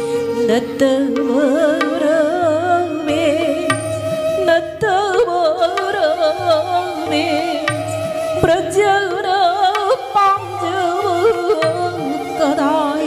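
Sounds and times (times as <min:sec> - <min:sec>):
person singing ornamented melody: 0:09.4 - 0:13.0.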